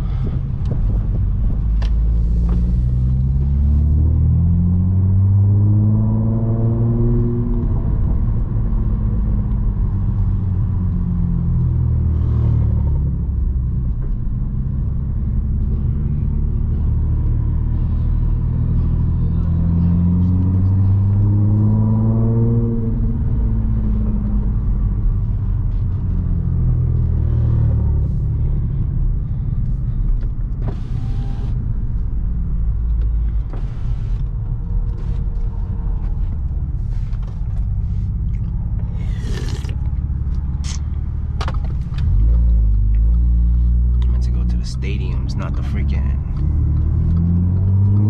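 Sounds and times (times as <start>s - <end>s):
car engine drone: 0.0s - 48.0s
road rumble: 0.0s - 48.0s.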